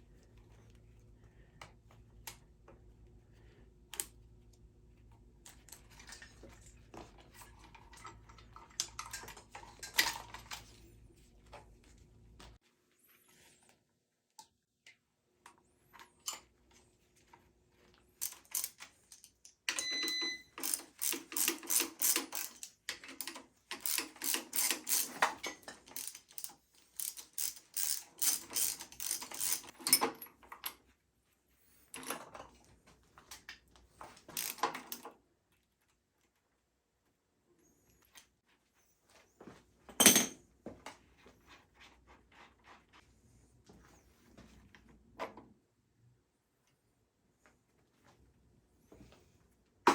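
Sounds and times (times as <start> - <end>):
ratchet wrench clicking: 20.6 - 25.2, 26.0 - 29.7, 34.4 - 34.6.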